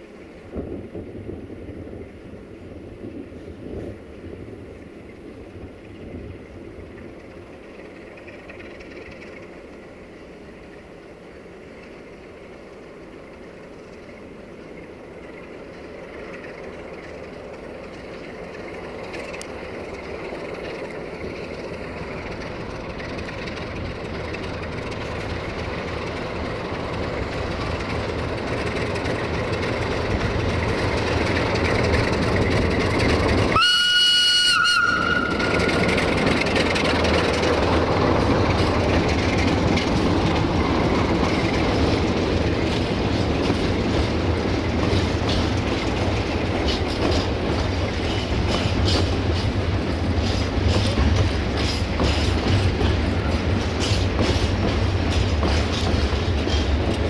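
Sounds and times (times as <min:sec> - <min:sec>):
diesel train approaching: 0:00.0 - 0:57.0
train horn blast: 0:33.5 - 0:35.8.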